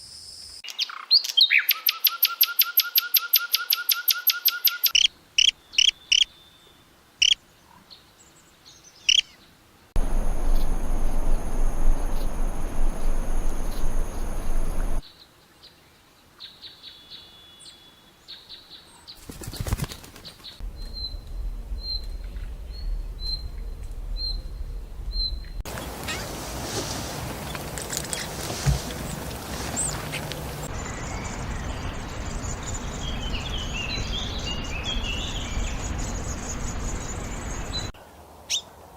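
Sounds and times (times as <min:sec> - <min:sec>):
small birds chirping: 0:00.6 - 0:15.8, 0:16.4 - 0:26.3, 0:27.4 - 0:38.6
loud steady rushing noise: 0:10.0 - 0:15.0
wingbeats fluttering: 0:10.0 - 0:15.0, 0:19.2 - 0:30.7.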